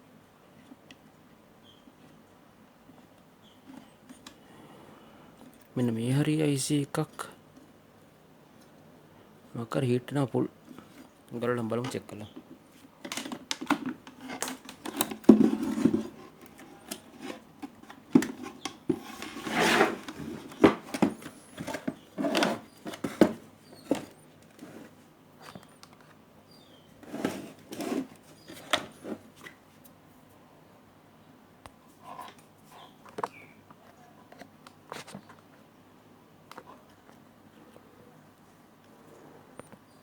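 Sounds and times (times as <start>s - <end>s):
clicks and knocks of handling: 11.8s - 24.7s
short rubbing scrapes: 18.9s - 20.6s.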